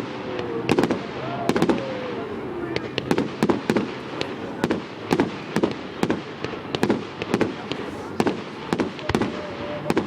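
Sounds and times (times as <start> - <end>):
fireworks rumble: 0.0 - 10.0
fireworks sharp bangs: 0.0 - 10.0.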